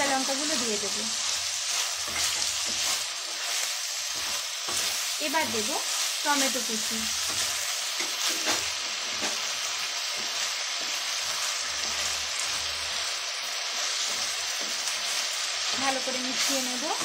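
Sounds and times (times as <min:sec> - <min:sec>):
food sizzling in hot oil: 0:00.0 - 0:17.0
spatula scraping a pan: 0:01.6 - 0:12.7.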